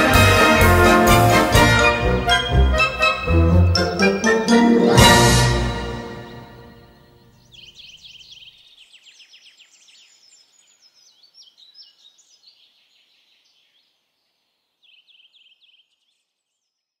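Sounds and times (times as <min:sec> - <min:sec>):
birdsong: 0:05.8 - 0:17.0.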